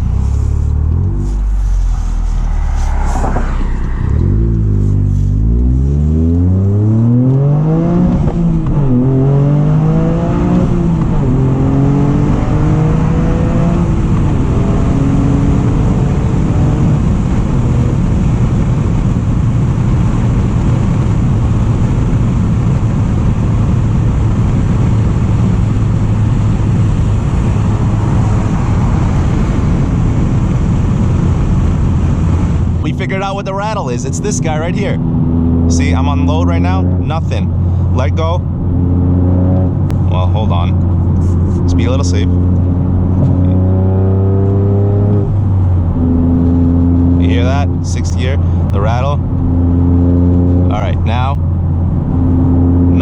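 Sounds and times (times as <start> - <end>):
car engine accelerating: 0.0 - 53.0.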